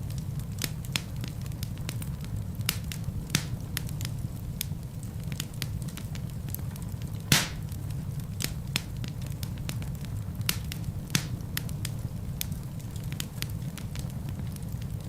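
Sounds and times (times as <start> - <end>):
fire crackling: 0.0 - 15.0
low rumble of flames: 0.0 - 15.0
loud fire pop: 7.3 - 7.8.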